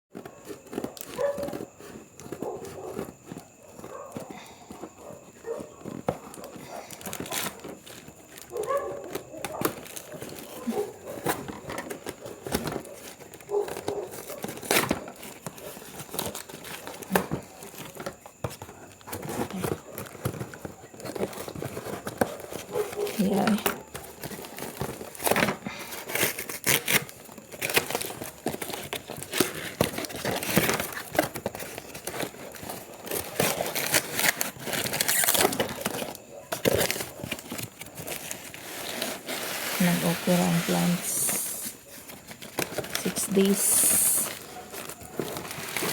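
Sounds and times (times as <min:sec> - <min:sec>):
packaging crinkling and rustling: 0:00.1 - 0:45.9
packaging tearing: 0:24.0 - 0:45.9.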